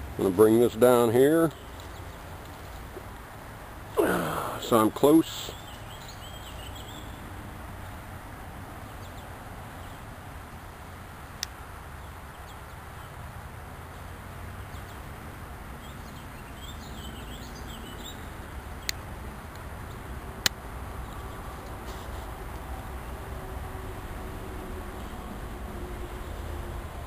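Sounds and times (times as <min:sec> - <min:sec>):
outdoor background noise: 0:00.0 - 0:27.0
bird chirps: 0:05.4 - 0:07.2, 0:15.8 - 0:19.0.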